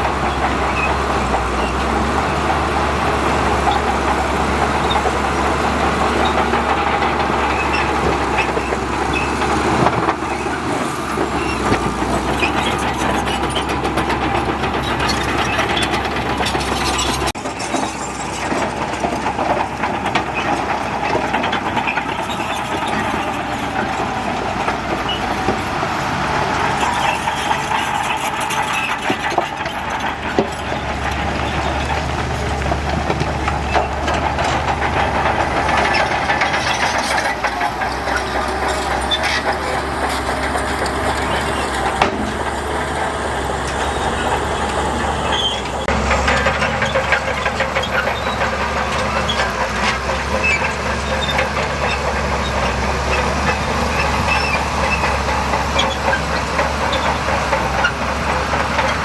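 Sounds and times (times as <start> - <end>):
bulldozer diesel engine: 0.0 - 59.0
steel tracks rattling and clanking: 0.0 - 59.0.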